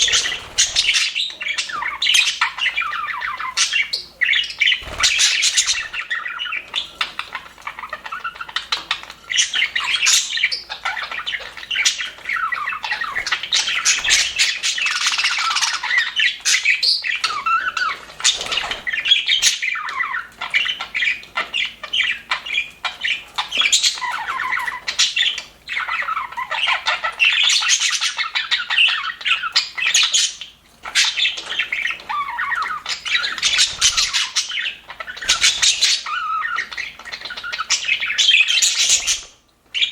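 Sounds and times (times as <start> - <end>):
flock of budgerigars chattering: 0.0 - 39.9.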